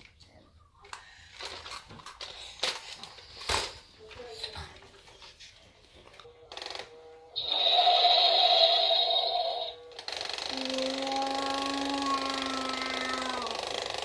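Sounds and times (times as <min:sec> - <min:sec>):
toy motor and gears whining: 0:06.4 - 0:14.0
electronic growl from toy speaker: 0:10.4 - 0:14.0.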